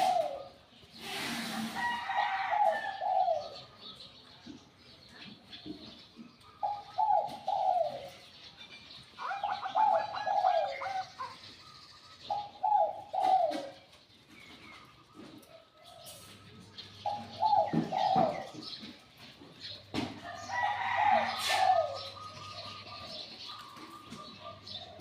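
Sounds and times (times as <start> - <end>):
dove cooing: 0.0 - 4.0, 6.4 - 8.4, 9.2 - 19.1, 20.2 - 25.0.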